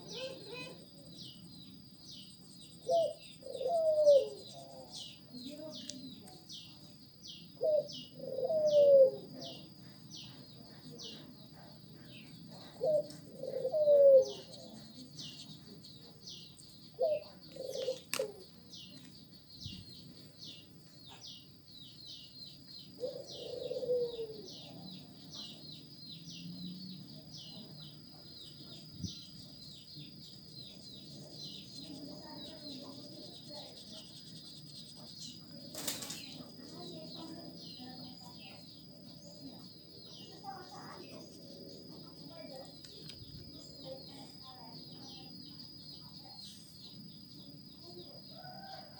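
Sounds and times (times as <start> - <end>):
dove cooing: 2.8 - 5.2, 7.6 - 18.8, 22.9 - 45.2.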